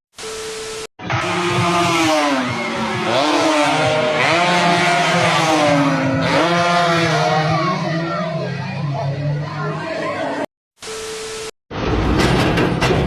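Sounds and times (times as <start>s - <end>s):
vehicle engine revving: 1.0s - 9.0s.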